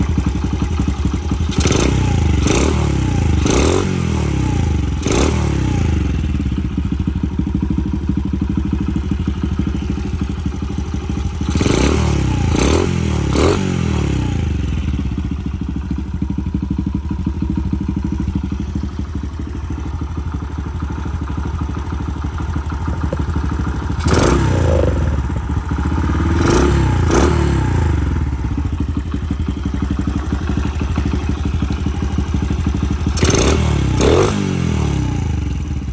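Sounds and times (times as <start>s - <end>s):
motorcycle engine idling: 0.0s - 35.9s
motorcycle throttle blips: 22.3s - 31.8s.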